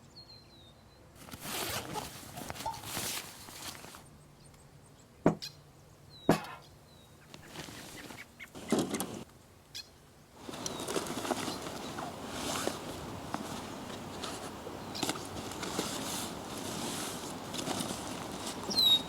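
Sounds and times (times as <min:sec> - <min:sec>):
rustling and handling noises: 0:01.2 - 0:04.1, 0:07.3 - 0:09.3, 0:10.4 - 0:19.0
sharp knocks: 0:06.3 - 0:06.6
faint bird chirp: 0:18.6 - 0:19.0.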